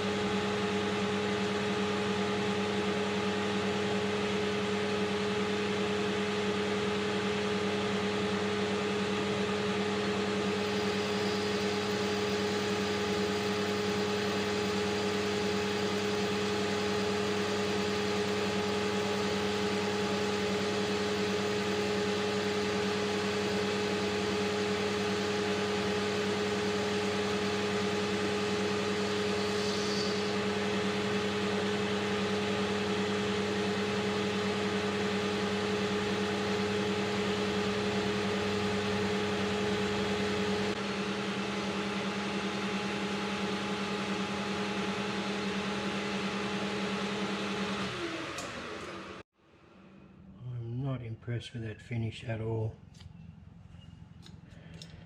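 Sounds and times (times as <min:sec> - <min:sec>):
metal lathe humming: 0:10.2 - 0:32.7.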